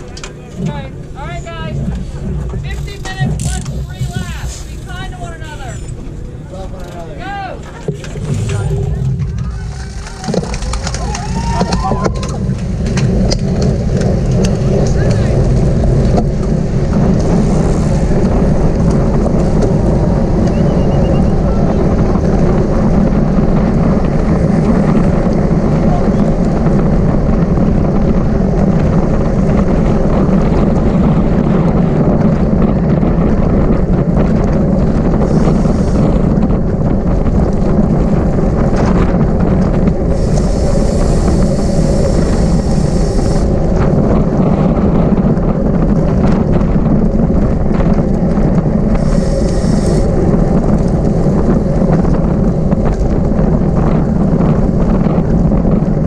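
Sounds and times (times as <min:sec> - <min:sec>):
wind rush on microphone: 0:00.0 - 0:56.0
high hissing bursts: 0:40.2 - 0:43.5, 0:49.0 - 0:50.0.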